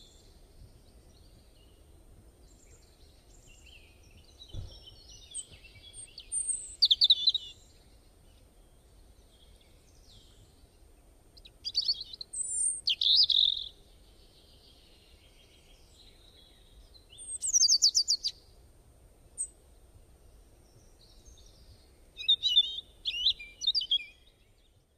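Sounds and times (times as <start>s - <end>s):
bird chirping and trilling: 4.5s - 7.6s, 11.6s - 13.8s, 17.1s - 18.3s, 22.2s - 24.3s.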